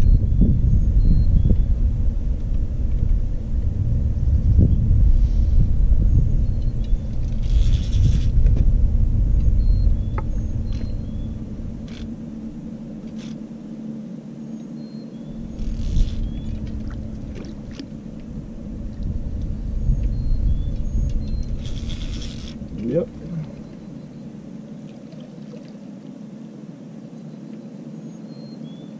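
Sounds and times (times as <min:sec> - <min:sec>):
wind buffeting microphone: 0:00.0 - 0:13.5, 0:15.3 - 0:24.6
small birds chirping: 0:14.5 - 0:16.8, 0:19.4 - 0:24.8.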